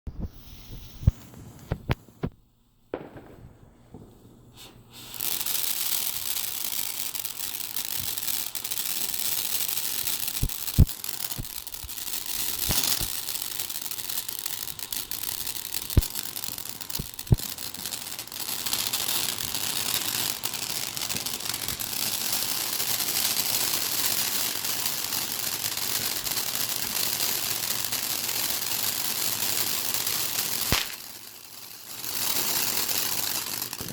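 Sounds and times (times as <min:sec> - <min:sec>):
sharp pops: 0:00.1 - 0:05.2, 0:10.4 - 0:13.3, 0:15.8 - 0:16.2, 0:16.9 - 0:17.9, 0:30.7 - 0:31.1
firework bangs: 0:00.1 - 0:33.9
firework hissing spray: 0:00.2 - 0:02.0, 0:04.0 - 0:33.9.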